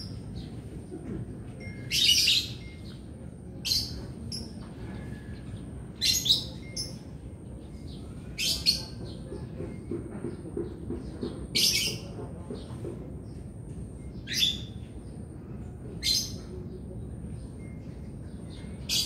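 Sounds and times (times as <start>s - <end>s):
bird chirping: 5.4s - 12.2s.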